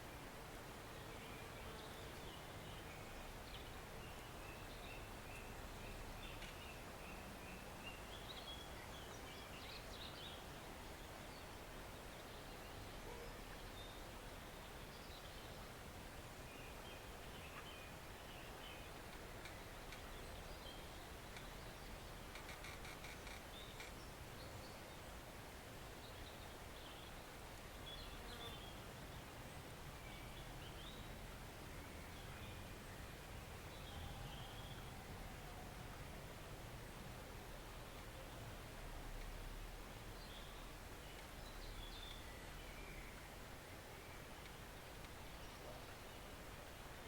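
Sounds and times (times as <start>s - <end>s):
forest stream rushing: 23.4s - 47.0s.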